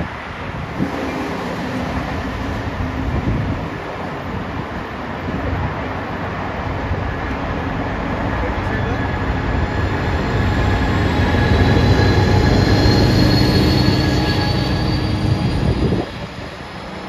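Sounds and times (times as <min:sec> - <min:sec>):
diesel locomotive engine rumbling: 0:00.0 - 0:17.0.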